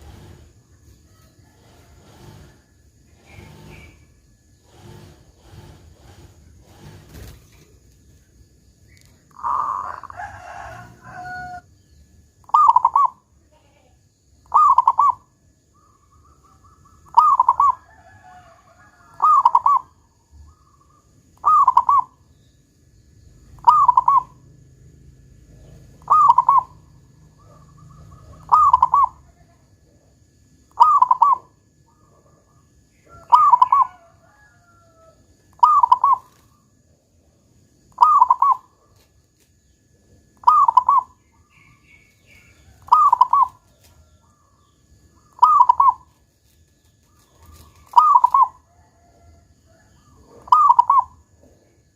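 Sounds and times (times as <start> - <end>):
dove cooing: 0.0 - 0.6, 1.4 - 4.1, 9.2 - 11.6, 12.4 - 13.3, 14.4 - 22.3, 23.4 - 24.6, 25.4 - 30.1, 30.7 - 36.6, 37.9 - 39.1, 40.3 - 46.2, 47.1 - 51.8.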